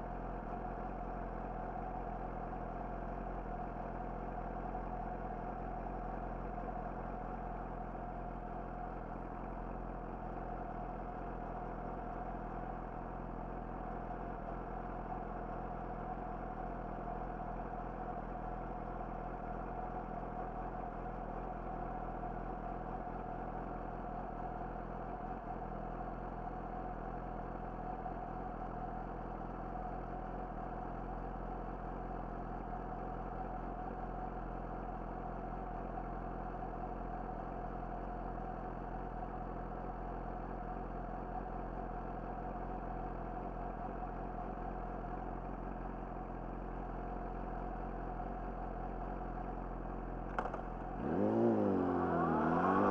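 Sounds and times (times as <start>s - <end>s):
motorcycle engine idling: 0.0s - 52.9s.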